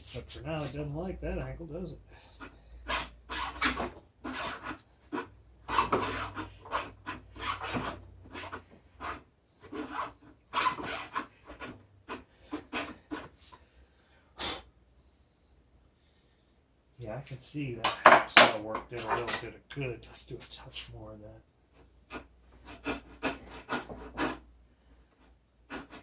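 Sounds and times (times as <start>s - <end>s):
hand file rasping on metal: 2.4s - 13.4s, 22.1s - 24.4s, 25.7s - 26.0s.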